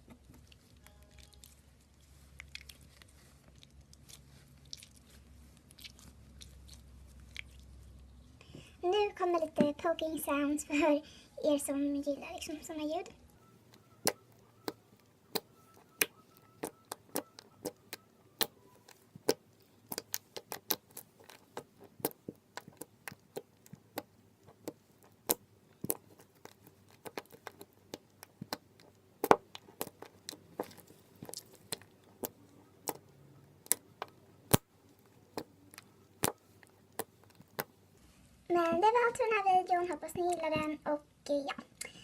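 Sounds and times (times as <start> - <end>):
slime clicking and popping: 13.7 - 37.8.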